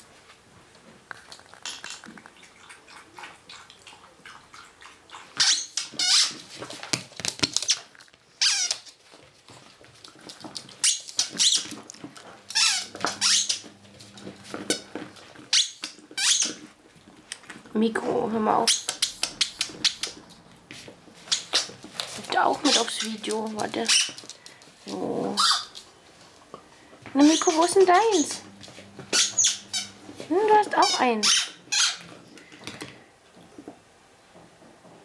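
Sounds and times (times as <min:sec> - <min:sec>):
squeaky rubber toy squeaking: 0:05.4 - 0:06.4, 0:08.4 - 0:08.8, 0:10.8 - 0:11.7, 0:12.5 - 0:13.6, 0:15.5 - 0:16.6, 0:23.8 - 0:24.2, 0:25.4 - 0:25.7, 0:27.2 - 0:28.4, 0:29.1 - 0:30.0, 0:30.7 - 0:32.0.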